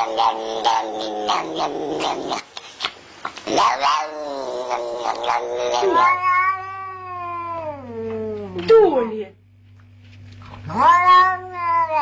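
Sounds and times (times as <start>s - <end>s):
animal screaming: 3.5s - 7.4s.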